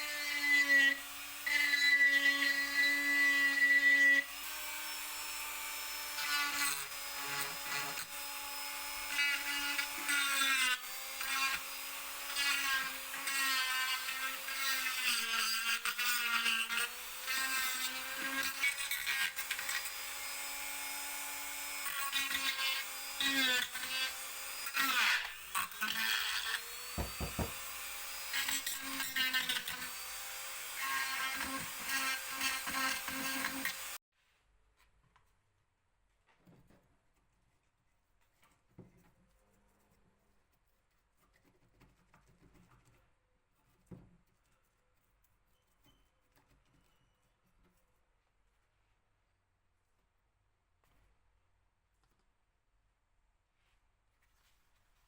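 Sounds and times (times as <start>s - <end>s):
grinding rasp: 0.0s - 34.0s
power tool running on wood: 19.5s - 34.0s.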